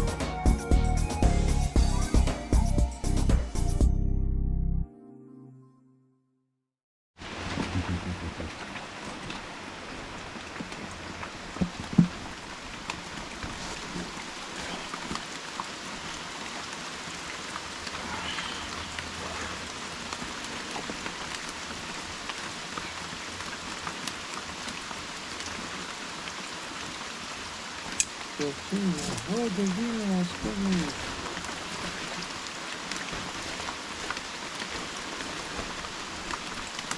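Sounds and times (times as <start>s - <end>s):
heavy rain pouring: 7.2s - 36.9s
raindrops ticking: 27.8s - 36.9s.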